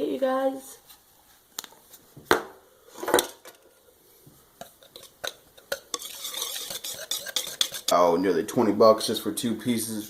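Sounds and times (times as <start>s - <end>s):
utensil clinking and scraping container: 4.6s - 8.0s.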